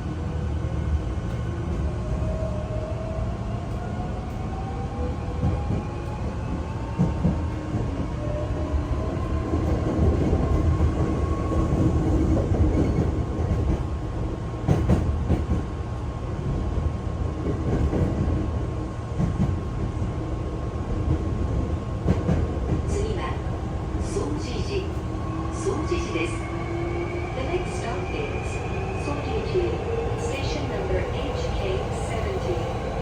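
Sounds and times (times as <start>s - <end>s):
wheels rumbling on rail: 5.4s - 26.7s.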